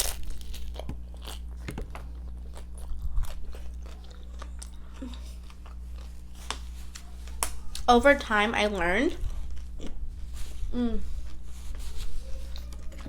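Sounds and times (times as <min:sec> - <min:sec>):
chewing crisp food: 0:00.0 - 0:07.9
steady low hum: 0:00.0 - 0:13.0.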